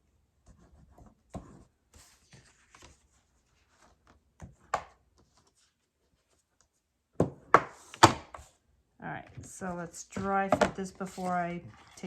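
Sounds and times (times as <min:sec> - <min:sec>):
cardstock rustling and scraping: 0:09.3 - 0:12.0.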